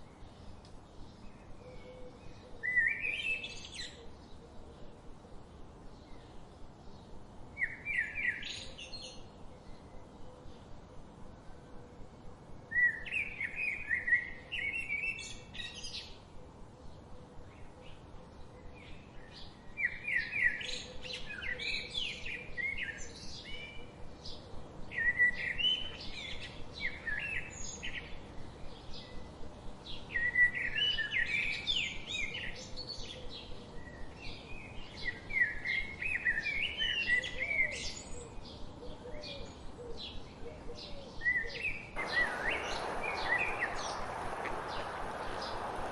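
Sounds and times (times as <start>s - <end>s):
faint steady hiss: 0.0s - 45.9s
songbirds warbling: 30.1s - 45.9s.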